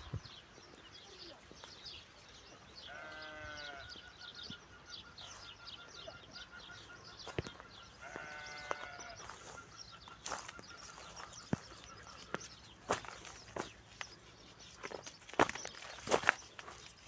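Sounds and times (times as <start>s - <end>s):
sheep or goat bleating: 2.8s - 3.9s, 8.0s - 9.3s.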